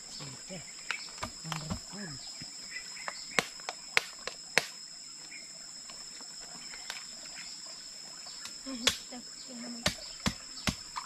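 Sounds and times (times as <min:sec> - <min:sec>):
insects chirring: 0:00.0 - 0:11.0
sharp cracks: 0:03.4 - 0:04.8.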